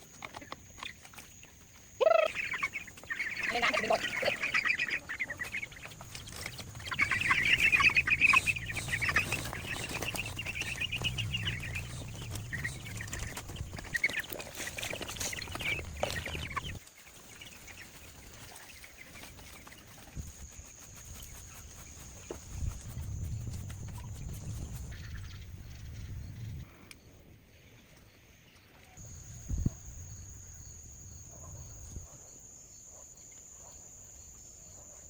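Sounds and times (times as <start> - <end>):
chickens clucking: 0.0 - 25.2.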